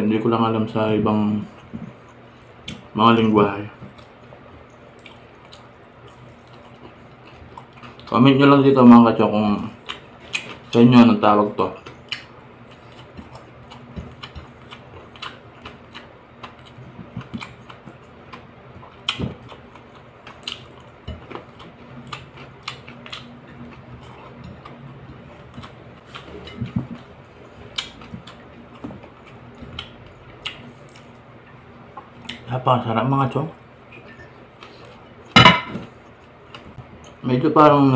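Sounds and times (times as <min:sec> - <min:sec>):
chewing and lip smacks: 0:03.8 - 0:08.1, 0:09.8 - 0:10.7, 0:11.8 - 0:32.5.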